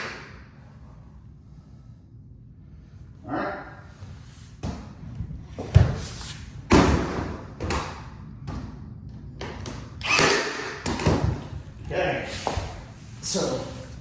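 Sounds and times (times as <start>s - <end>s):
nail gun firing: 10.0s - 11.2s.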